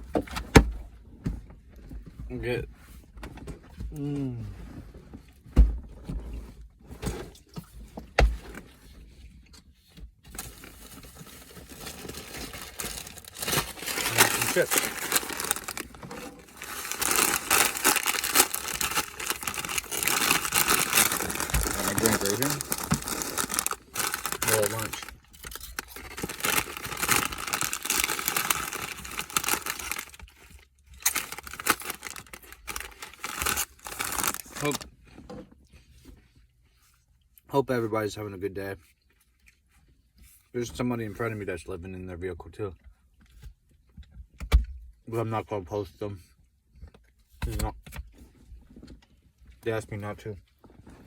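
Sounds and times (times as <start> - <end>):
food packaging crackling: 10.4 - 34.8
rustling: 10.4 - 34.8.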